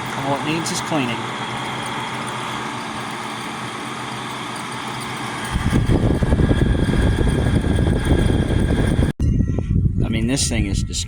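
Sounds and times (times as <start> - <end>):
air conditioner humming: 0.0 - 11.0
loud irregular low rumble: 5.4 - 11.0.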